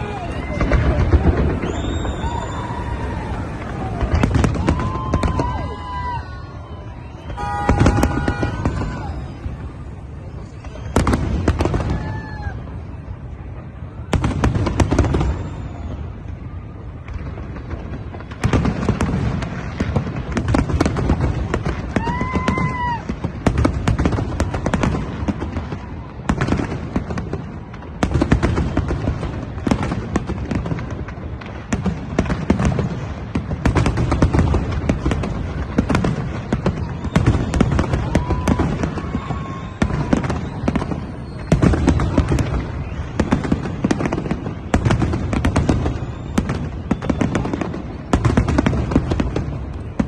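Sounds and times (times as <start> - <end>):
pitched whoop tone: 0.0 - 13.2, 21.8 - 23.3, 36.8 - 43.2
fireworks bangs and crackles: 0.0 - 50.0
heavy firework booms: 0.0 - 50.0.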